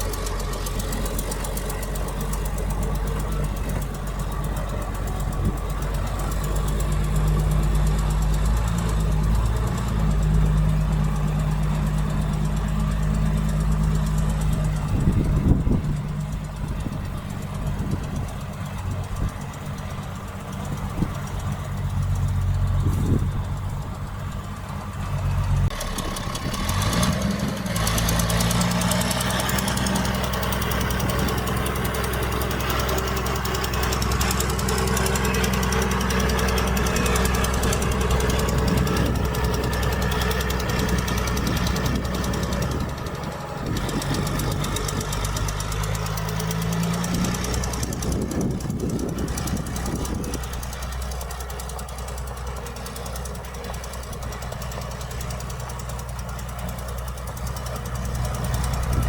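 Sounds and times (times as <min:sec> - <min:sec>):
heavy diesel engine revving: 0:00.0 - 0:59.0.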